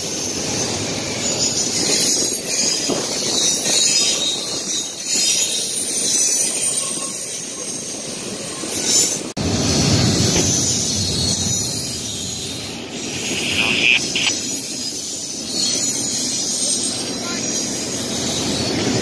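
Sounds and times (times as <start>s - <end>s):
freight train wheels rumbling: 0.0s - 19.0s
high-pitched hiss: 11.0s - 16.4s.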